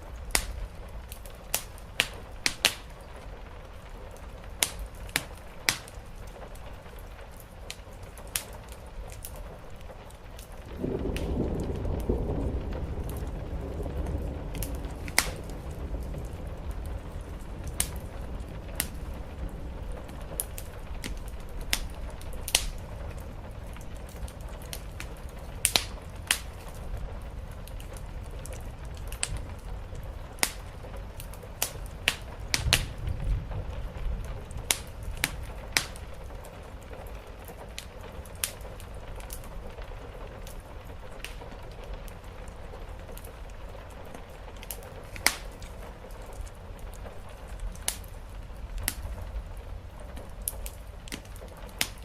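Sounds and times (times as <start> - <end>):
wood fire crackling and popping: 0.0 - 52.0
low rumbling background: 9.5 - 37.5
deeper rumble: 10.6 - 31.2.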